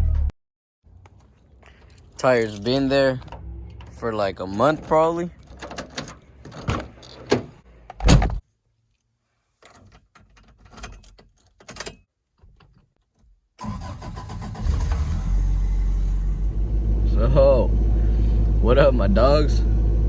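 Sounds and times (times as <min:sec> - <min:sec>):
car engine starting and idling: 0:00.9 - 0:08.2, 0:13.6 - 0:20.0.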